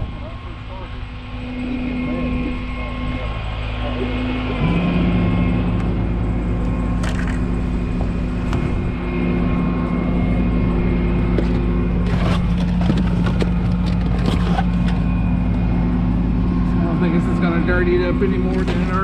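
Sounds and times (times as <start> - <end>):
truck engine running: 0.0 - 19.0
clatter and knocks: 11.4 - 15.0.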